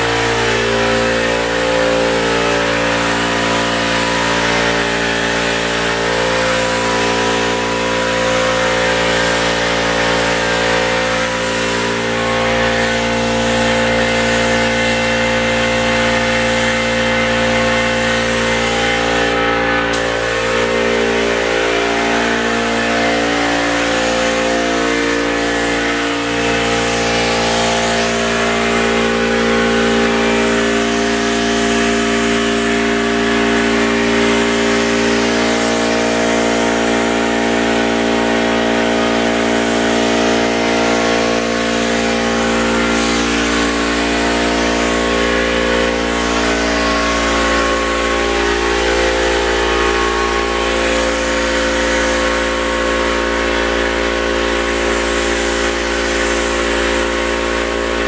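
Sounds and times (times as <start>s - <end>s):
air compressor running: 0.0s - 58.0s
paint spray gun hissing: 0.0s - 58.0s.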